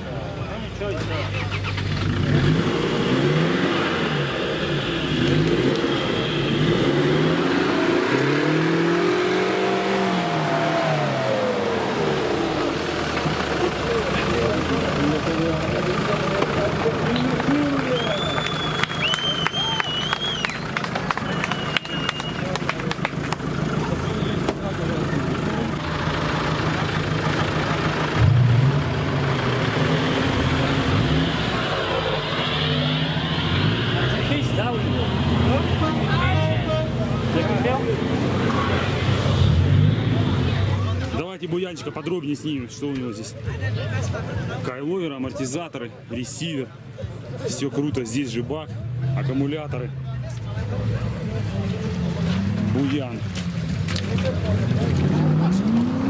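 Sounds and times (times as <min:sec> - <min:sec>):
off-road vehicle engine revving: 0:00.0 - 0:41.3, 0:43.4 - 0:44.8, 0:47.0 - 0:56.0.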